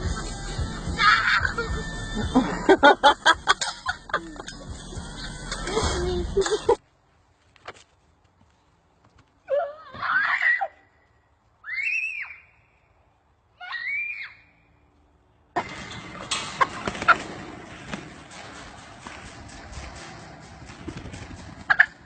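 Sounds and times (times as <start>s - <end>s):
shrill screams: 9.5s - 10.9s, 11.6s - 12.6s, 13.6s - 14.5s.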